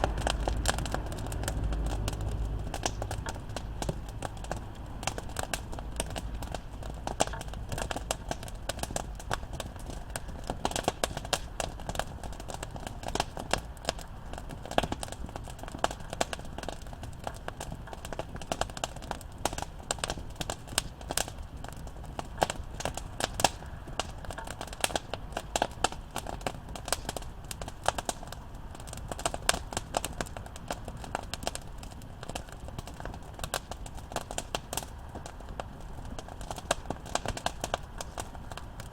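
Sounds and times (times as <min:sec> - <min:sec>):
low rumble: 0:00.0 - 0:07.0
campfire crackling: 0:00.0 - 0:38.9.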